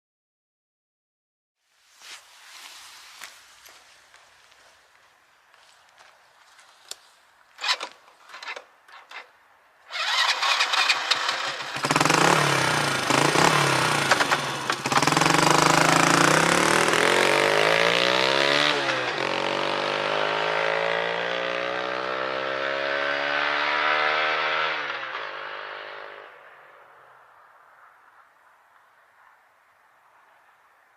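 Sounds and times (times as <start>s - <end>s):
motorcycle engine accelerating: 9.9s - 26.3s.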